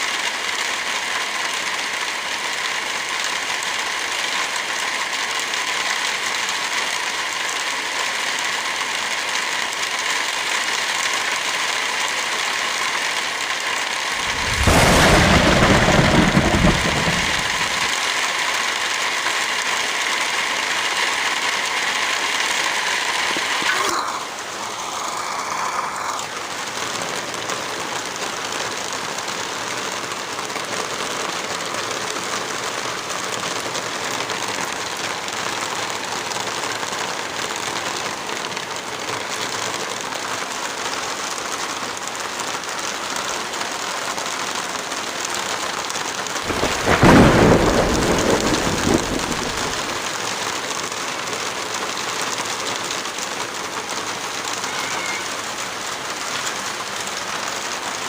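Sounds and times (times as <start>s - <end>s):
heavy rain: 0.0s - 58.0s
thunder rolling: 14.1s - 18.0s, 46.5s - 50.1s.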